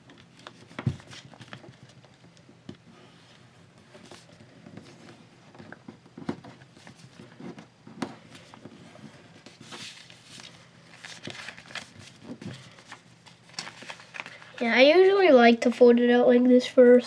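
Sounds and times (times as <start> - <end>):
paper being folded and crinkled: 0.1 - 2.4, 8.2 - 16.0.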